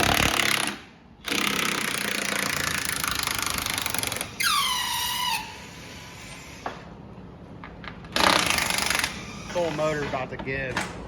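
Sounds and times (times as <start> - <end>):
high metal squeak: 4.4 - 6.6.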